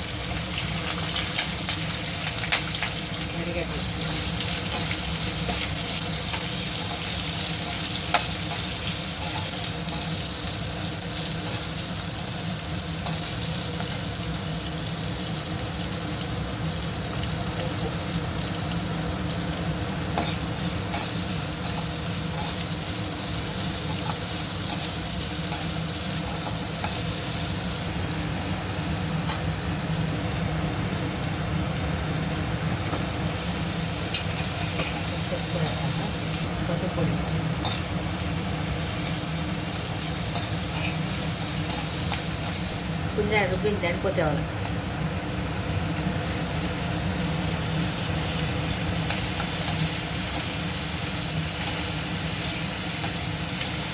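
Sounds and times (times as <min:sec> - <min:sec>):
onion sizzling in hot oil: 0:00.0 - 0:53.9.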